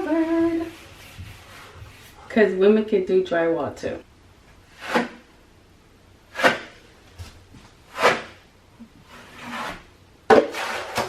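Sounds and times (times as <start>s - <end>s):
sanding sponge swishing on drywall: 0.0s - 2.3s.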